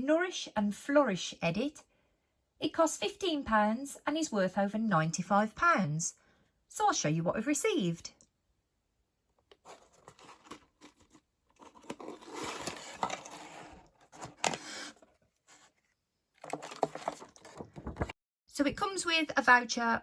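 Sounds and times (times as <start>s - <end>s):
packaging rustling: 9.5s - 18.2s
paper tearing and crinkling: 9.6s - 14.9s.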